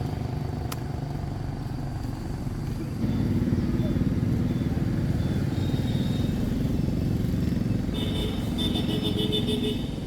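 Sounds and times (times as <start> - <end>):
motorcycle engine running: 2.5 - 9.0.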